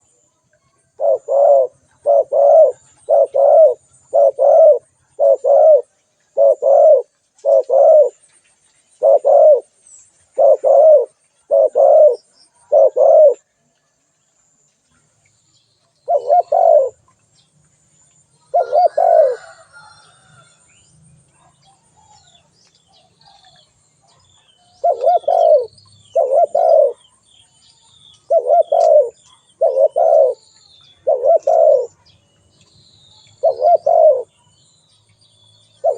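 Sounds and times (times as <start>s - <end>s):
dove cooing: 0.9s - 8.2s, 9.0s - 9.7s, 10.3s - 13.5s, 16.1s - 17.0s, 18.5s - 19.9s, 24.4s - 27.1s, 28.2s - 30.4s, 31.0s - 32.0s, 33.4s - 34.3s.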